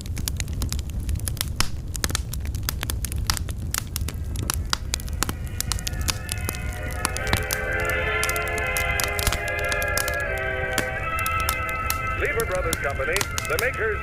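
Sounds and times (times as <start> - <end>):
sharp pops and snaps: 0.0 - 13.9
log fire crackling: 0.0 - 14.0
music from old radio: 4.4 - 14.0.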